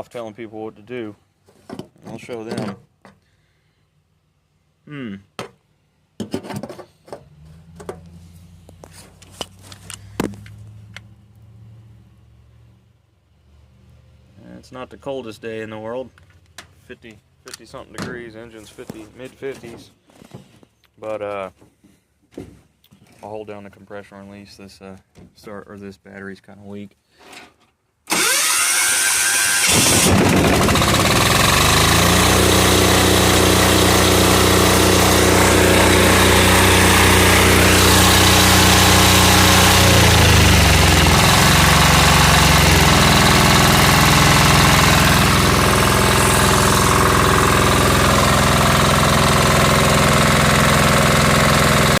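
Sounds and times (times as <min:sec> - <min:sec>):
diesel engine running: 0:28.1 - 0:52.0
starter motor cranking: 0:28.1 - 0:52.0.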